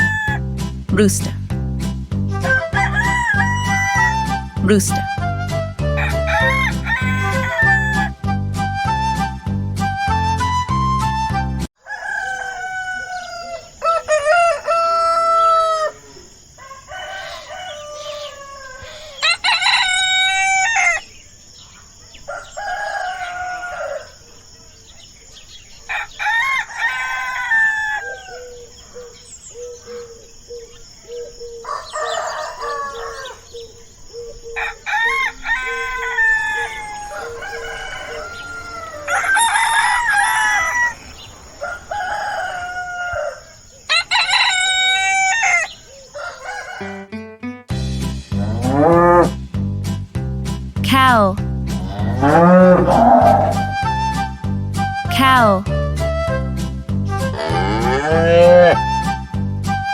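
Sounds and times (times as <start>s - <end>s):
rooster crowing: 0.0s - 0.4s, 2.4s - 4.5s, 5.8s - 8.2s, 11.8s - 21.2s, 21.9s - 24.9s, 25.7s - 47.2s, 51.8s - 54.3s, 57.2s - 59.2s
chicken clucking: 41.6s - 47.3s.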